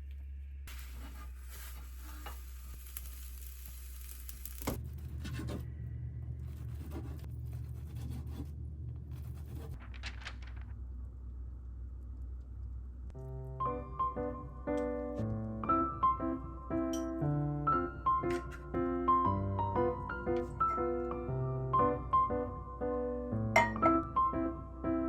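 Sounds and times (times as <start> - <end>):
food sizzling in a pan: 0.7 - 4.8.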